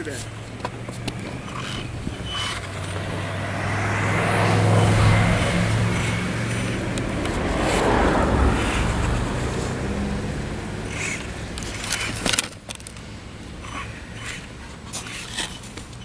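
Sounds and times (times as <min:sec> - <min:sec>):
low vehicle hum: 0:00.0 - 0:16.0
rushing noise: 0:01.3 - 0:12.2.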